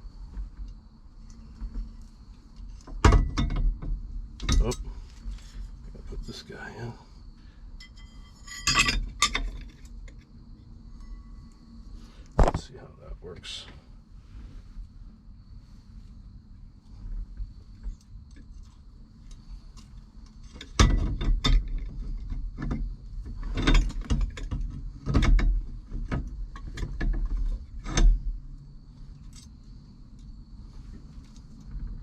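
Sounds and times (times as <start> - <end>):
metal parts clicking and rattling: 7.8 - 10.2.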